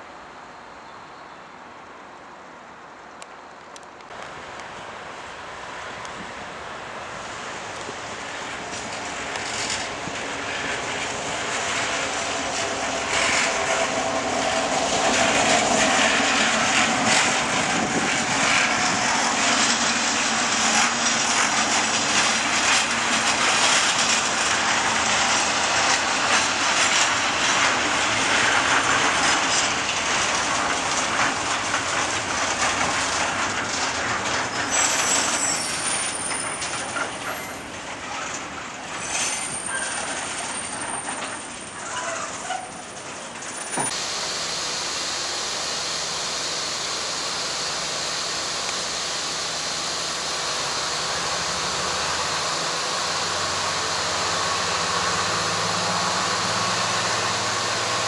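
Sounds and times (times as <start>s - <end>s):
diesel locomotive passing: 4.2s - 58.0s
freight wagons clattering on rails: 7.3s - 44.0s.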